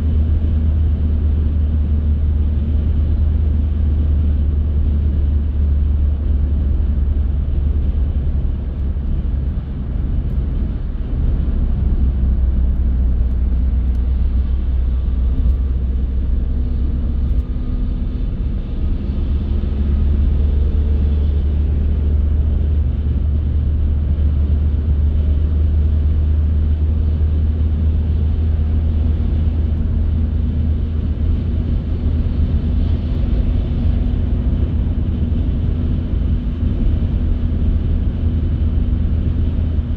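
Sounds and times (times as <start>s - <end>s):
car engine and tyre noise: 0.0s - 39.9s.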